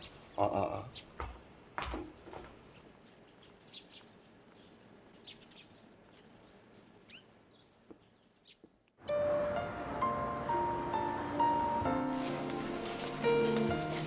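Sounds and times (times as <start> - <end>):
faint bird chirps: 2.8 - 8.7.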